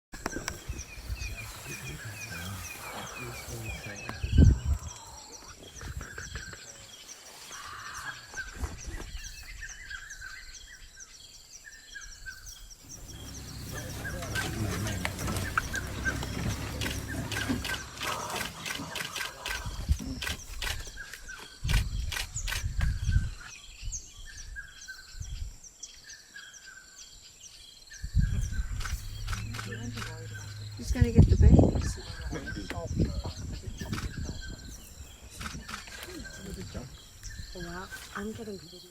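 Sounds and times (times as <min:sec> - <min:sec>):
birds chirping: 0:00.2 - 0:38.9
low rumbling thuds: 0:12.8 - 0:18.7
low rumbling: 0:12.8 - 0:20.5, 0:28.2 - 0:38.0.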